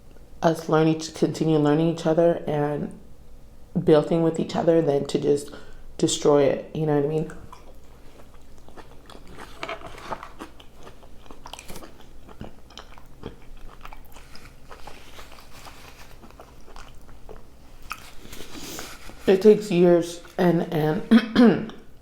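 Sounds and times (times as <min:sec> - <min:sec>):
person chewing food: 0:07.3 - 0:19.4.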